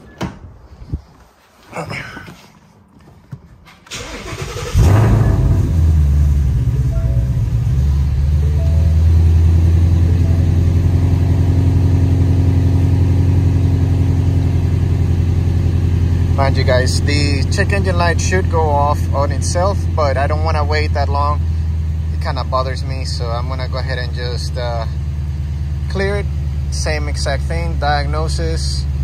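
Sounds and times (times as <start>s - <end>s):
car engine idling: 3.2s - 29.0s.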